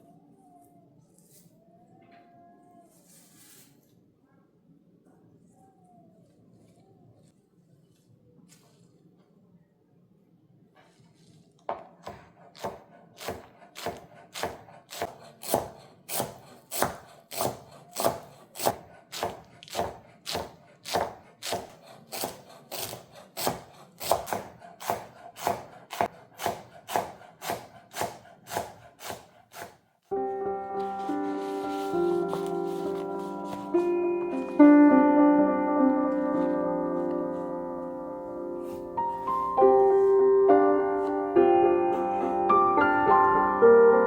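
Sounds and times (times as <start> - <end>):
knife chopping on wooden board: 11.7 - 29.8.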